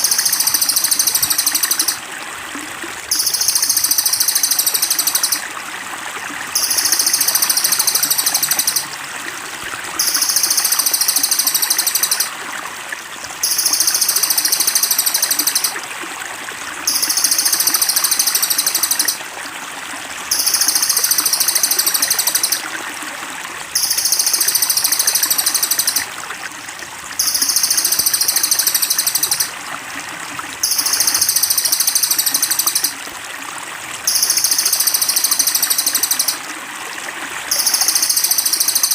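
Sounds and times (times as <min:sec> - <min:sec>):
buzzy bird trill: 0:00.0 - 0:02.0, 0:03.1 - 0:05.4, 0:06.6 - 0:08.9, 0:10.0 - 0:12.3, 0:13.4 - 0:15.7, 0:16.9 - 0:19.2, 0:20.3 - 0:22.6, 0:23.8 - 0:26.0, 0:27.2 - 0:29.5, 0:30.6 - 0:32.9, 0:34.1 - 0:36.4
trickling water: 0:00.0 - 0:38.9.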